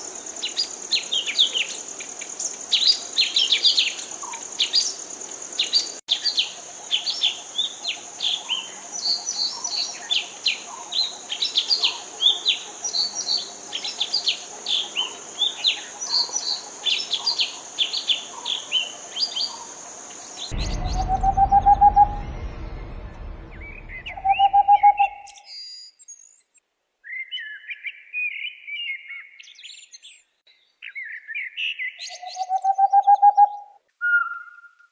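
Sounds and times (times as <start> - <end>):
songbirds chirping: 0.1 - 20.6
rising whistled note: 20.5 - 25.4.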